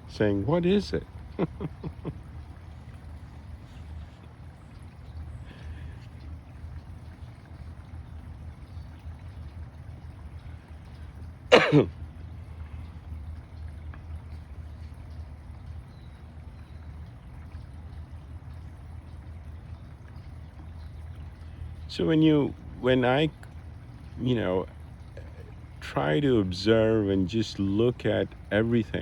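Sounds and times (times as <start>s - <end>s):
person coughing: 11.5s - 11.9s.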